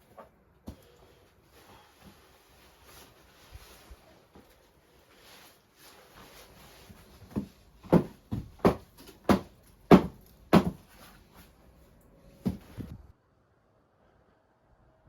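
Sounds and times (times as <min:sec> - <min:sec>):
dull knocks: 0:07.4 - 0:10.8.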